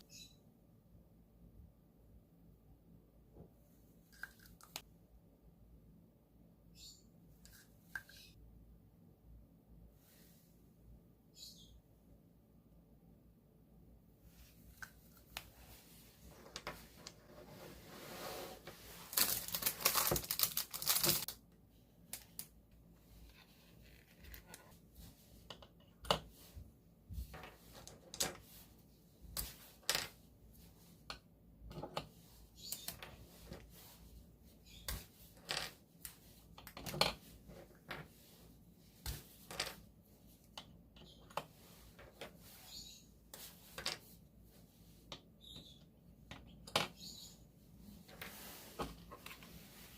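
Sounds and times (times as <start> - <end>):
packaging rustling and tearing: 19.0 - 21.4.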